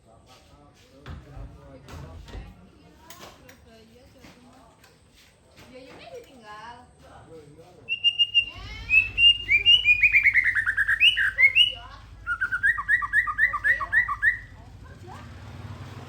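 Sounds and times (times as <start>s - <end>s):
songbird chirping: 4.8s - 16.0s.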